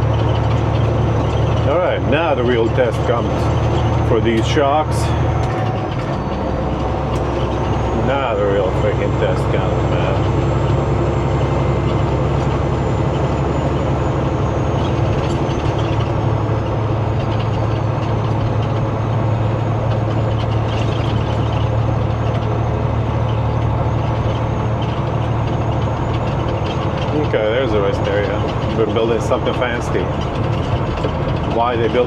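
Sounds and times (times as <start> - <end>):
short rattles: 0.0 - 10.3, 11.9 - 32.0
road noise: 0.0 - 32.0
truck engine droning: 0.0 - 32.0.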